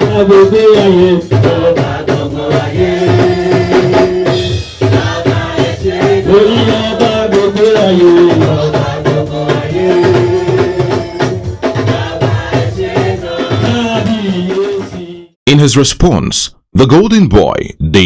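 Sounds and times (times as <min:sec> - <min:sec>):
drums: 0:00.0 - 0:16.0
church choir singing: 0:01.4 - 0:03.8, 0:04.8 - 0:15.1.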